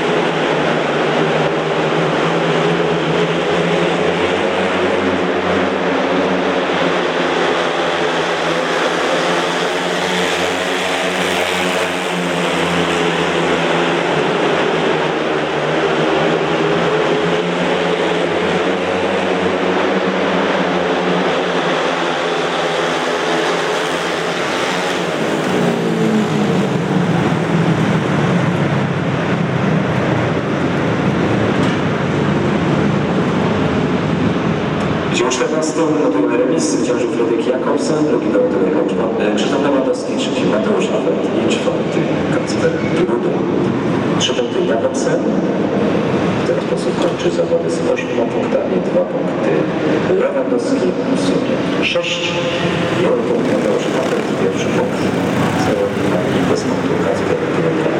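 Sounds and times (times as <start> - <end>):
motorcycles racing: 0.0 - 57.9.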